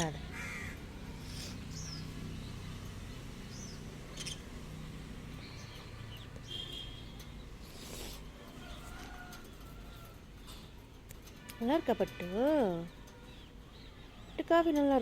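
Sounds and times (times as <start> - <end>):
parrots chirping and squeaking: 3.5 - 4.5.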